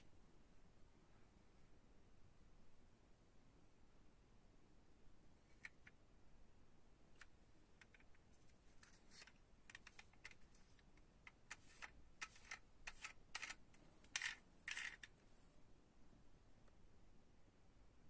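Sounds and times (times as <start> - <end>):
toy cars clicking and tapping: 8.8 - 15.1.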